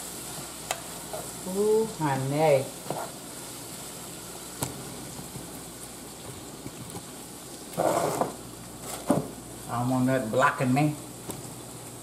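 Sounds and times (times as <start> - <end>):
food sizzling in a skillet: 0.0 - 12.0.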